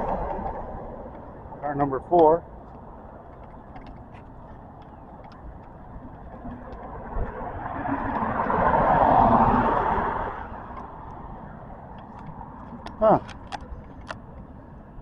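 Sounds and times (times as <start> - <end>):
car driving past: 6.5 - 11.4.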